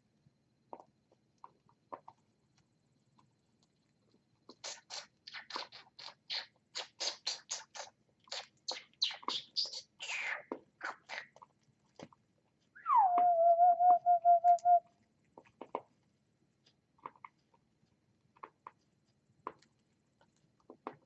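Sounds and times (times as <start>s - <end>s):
bird pecking at food: 15.0s - 21.0s.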